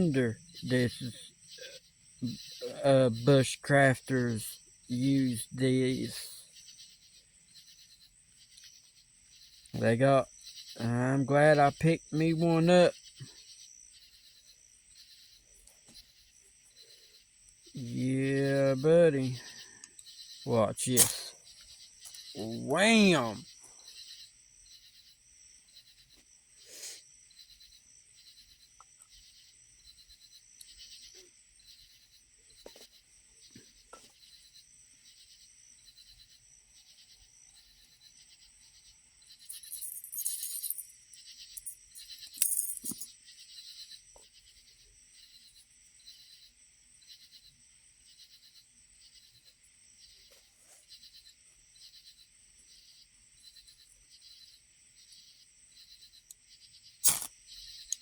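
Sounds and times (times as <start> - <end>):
insects chirping: 0.0 - 58.0
ferro rod scraping hiss: 17.8 - 21.4, 26.6 - 27.0, 57.0 - 57.3.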